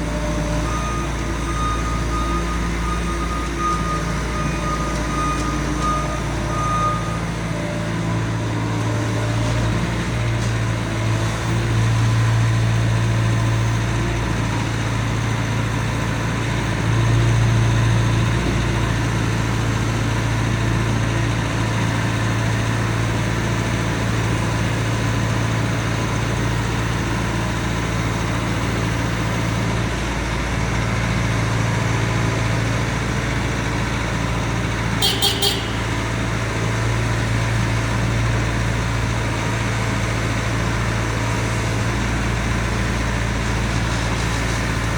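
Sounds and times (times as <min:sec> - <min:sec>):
diesel engine running: 0:00.0 - 0:44.9
sharp high-pitched sounds: 0:35.0 - 0:36.2.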